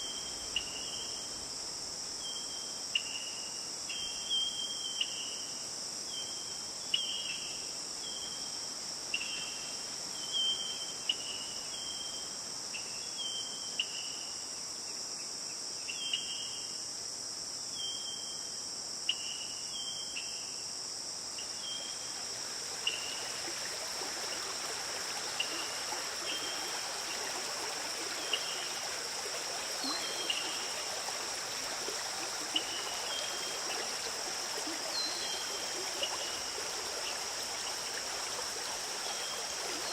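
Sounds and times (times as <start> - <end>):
flowing stream: 0.0 - 2.2, 21.4 - 39.9
high-pitched insect chorus: 0.0 - 39.9.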